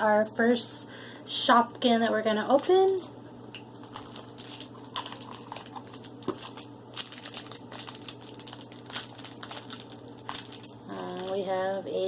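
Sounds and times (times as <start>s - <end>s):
plastic package crinkling and tearing: 3.8s - 11.5s.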